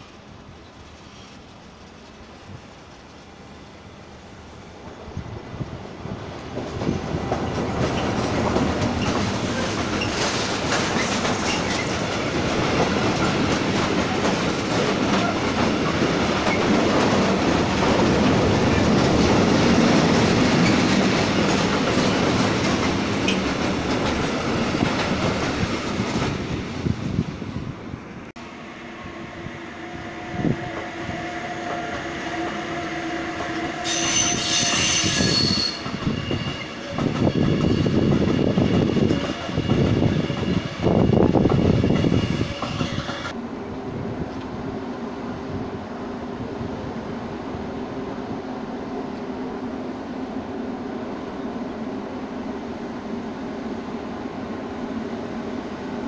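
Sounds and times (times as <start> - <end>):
train wheels squealing: 0.8 - 3.8, 9.0 - 10.4, 33.8 - 43.3
train wheels clattering on rails: 6.1 - 26.8, 33.4 - 43.4.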